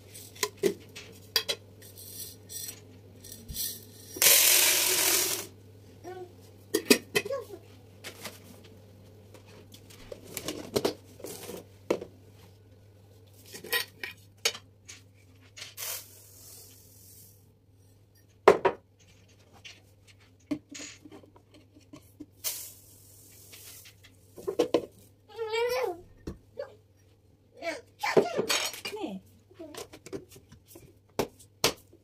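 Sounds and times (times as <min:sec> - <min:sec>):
brief hissing: 0:15.8 - 0:17.3.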